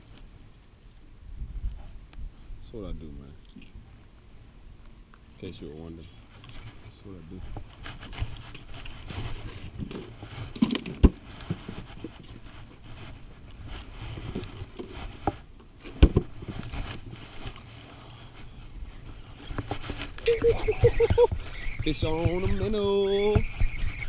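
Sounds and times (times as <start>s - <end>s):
wind buffeting microphone: 1.2s - 3.9s, 18.4s - 24.0s
light scraping: 5.4s - 24.0s.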